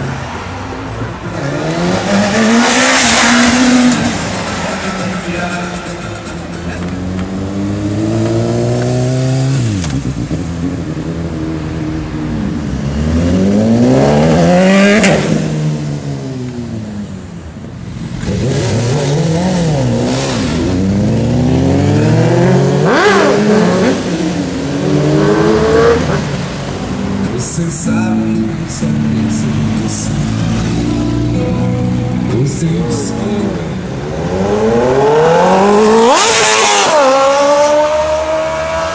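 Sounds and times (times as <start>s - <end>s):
motorcycles accelerating and passing by: 0.0s - 17.2s, 17.8s - 27.4s, 28.3s - 38.9s.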